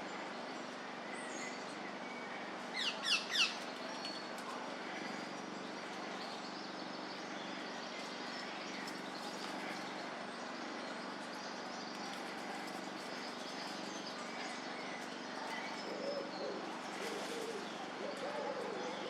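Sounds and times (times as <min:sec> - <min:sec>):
steady low hum: 0:00.0 - 0:19.0
pigeon cooing: 0:15.8 - 0:19.0.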